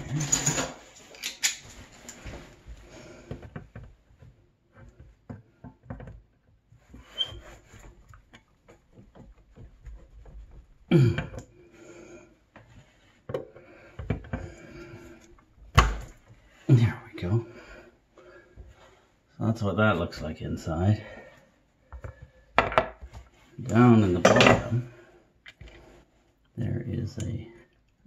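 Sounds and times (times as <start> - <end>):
metal faucet parts clicking and scraping: 0.0 - 2.2.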